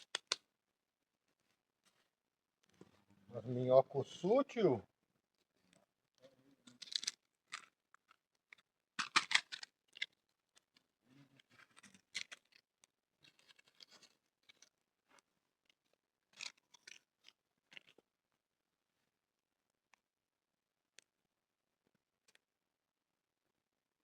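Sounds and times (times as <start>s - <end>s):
crunching and scraping noises: 6.6s - 18.0s.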